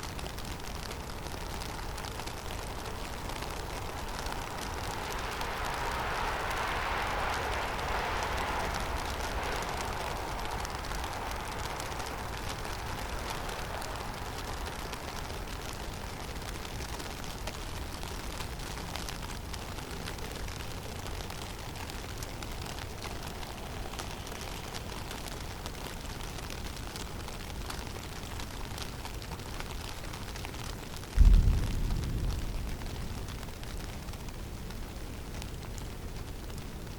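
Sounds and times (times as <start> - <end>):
even hiss: 0.0 - 17.0
low wind rumble: 0.0 - 36.9.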